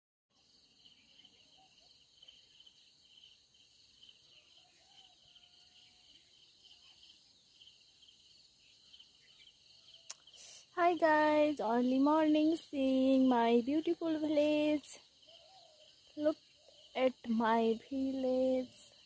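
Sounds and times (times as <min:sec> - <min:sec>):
crickets trilling: 0:00.4 - 0:19.0
soft bird calls: 0:15.2 - 0:17.0.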